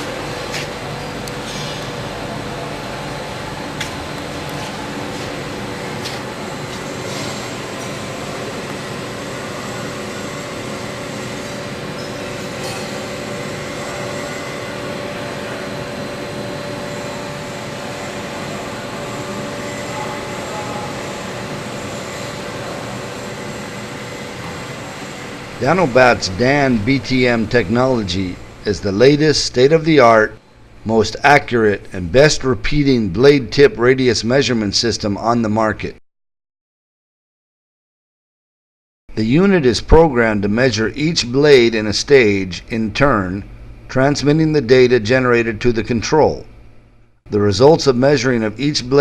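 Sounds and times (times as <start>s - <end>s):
grinding machine humming: 0.0s - 31.0s.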